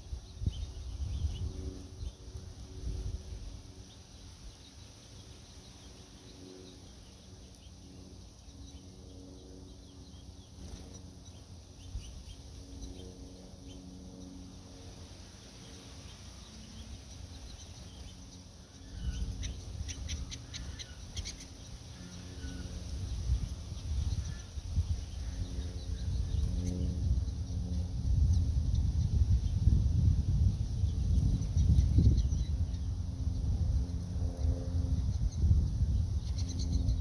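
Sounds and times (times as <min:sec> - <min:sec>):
wind rumbling on microphone: 0:00.0 - 0:04.6, 0:17.3 - 0:37.0
low drawn-out bird calls: 0:16.4 - 0:29.6.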